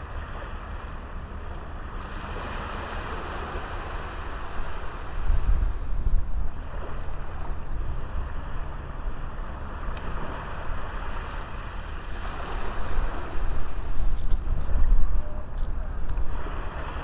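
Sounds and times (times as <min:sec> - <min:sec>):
sea waves washing onto beach: 0:00.0 - 0:17.0
wind rumbling on microphone: 0:00.0 - 0:17.0.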